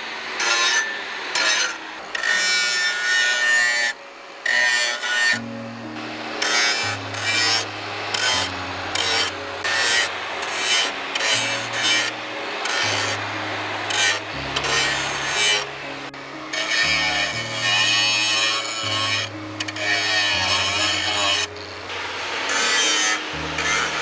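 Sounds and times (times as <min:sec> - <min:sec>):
background music: 0:02.2 - 0:24.0
hand file scraping: 0:06.4 - 0:15.8, 0:16.5 - 0:24.0.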